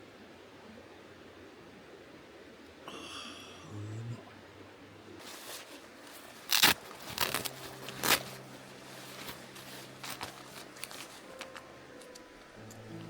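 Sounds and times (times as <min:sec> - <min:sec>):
faint steady low hum: 0:00.0 - 0:13.0
sharp crackles and clicks: 0:05.2 - 0:13.0.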